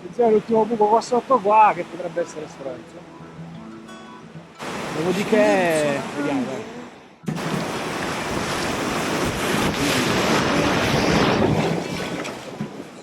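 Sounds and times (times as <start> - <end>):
whitewater rushing: 0.0 - 3.2, 4.4 - 13.0
wind buffeting microphone: 7.3 - 13.0.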